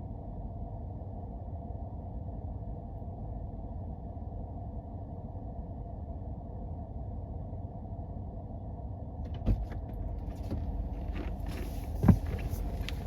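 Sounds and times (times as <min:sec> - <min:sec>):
car engine and road rumble: 0:09.2 - 0:13.0
vehicle thump: 0:09.2 - 0:13.0
knocks and clicks over rough ground: 0:09.3 - 0:13.0.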